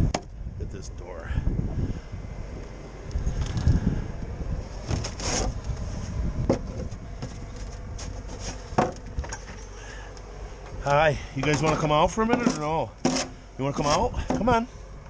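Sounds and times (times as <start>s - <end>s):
wind buffeting microphone: 0.0s - 9.7s
sharp knocks and clatters: 6.4s - 9.7s.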